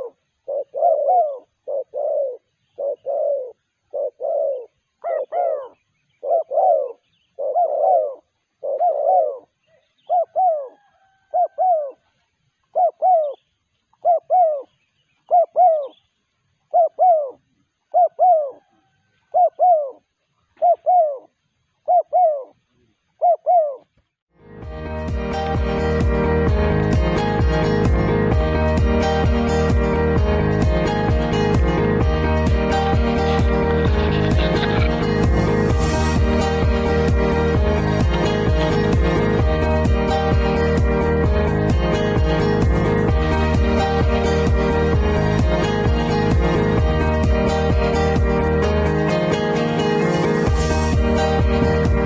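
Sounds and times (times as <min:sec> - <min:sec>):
dove cooing: 0:00.0 - 0:16.0, 0:16.7 - 0:22.6, 0:23.2 - 0:23.9, 0:33.0 - 0:36.2, 0:37.5 - 0:39.5.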